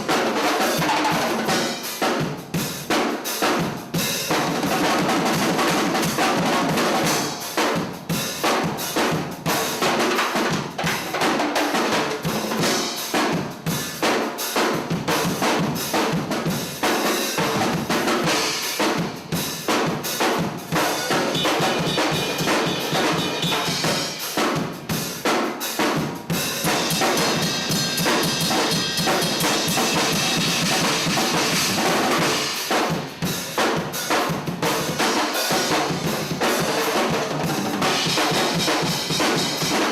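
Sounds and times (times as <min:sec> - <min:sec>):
drum kit groove: 0:00.0 - 0:39.9
cymbal wash: 0:20.9 - 0:24.4.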